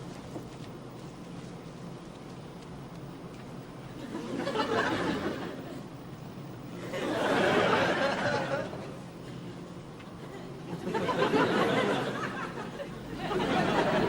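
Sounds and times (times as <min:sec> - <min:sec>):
audience laughing: 0:04.0 - 0:05.9, 0:06.8 - 0:09.6, 0:10.2 - 0:14.0.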